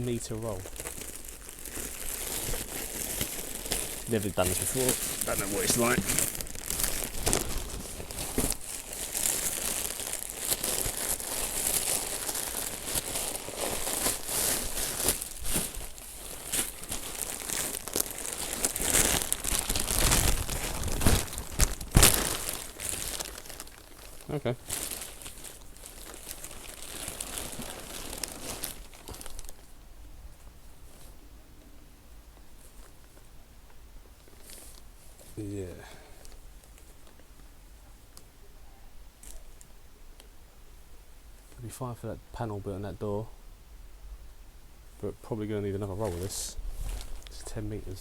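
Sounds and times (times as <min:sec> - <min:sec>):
insulation fleece crinkling: 0:00.0 - 0:29.7, 0:45.4 - 0:48.0
small crackles: 0:00.0 - 0:29.8, 0:30.4 - 0:38.4, 0:39.2 - 0:40.4, 0:45.0 - 0:48.0.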